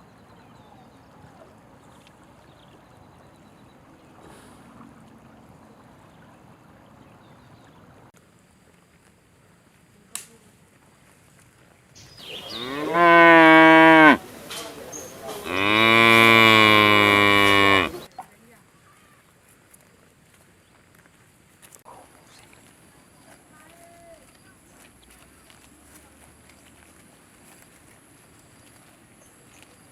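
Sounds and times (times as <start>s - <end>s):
cow mooing: 12.5s - 14.2s, 15.4s - 18.1s.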